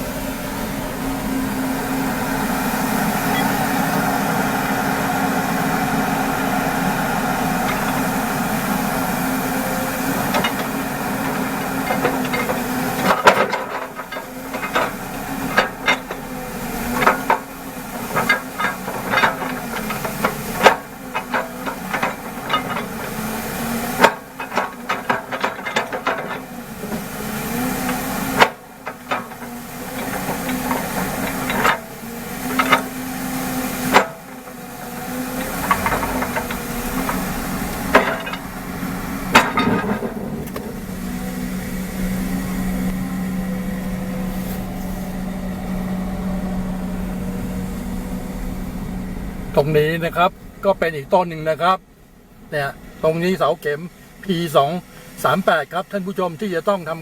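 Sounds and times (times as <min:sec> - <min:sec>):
engine running: 0:00.0 - 0:57.0
metal knocks and clanks: 0:06.4 - 0:44.8.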